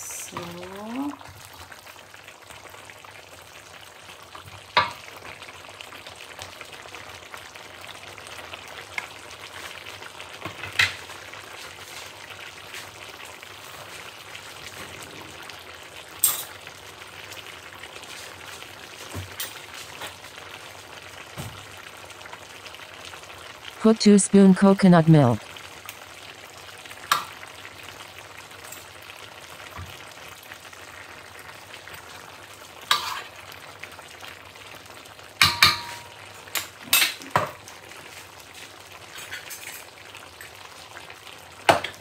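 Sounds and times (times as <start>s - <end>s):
food sizzling in a wok: 0.0s - 42.0s.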